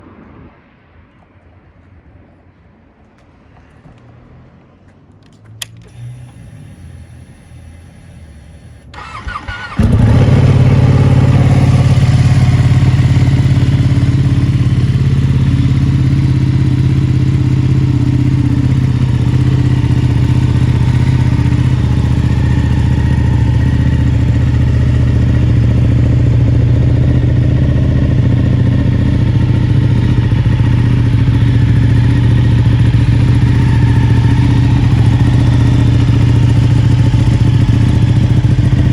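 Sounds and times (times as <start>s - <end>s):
click: 5.2s - 7.0s
motorcycle starter cranking: 5.6s - 12.4s
motorcycle engine idling loudly: 6.7s - 38.9s.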